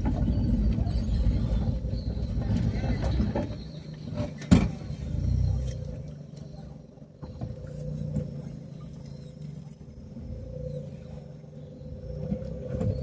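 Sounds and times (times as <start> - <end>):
vehicle on rough road: 0.0 - 13.0.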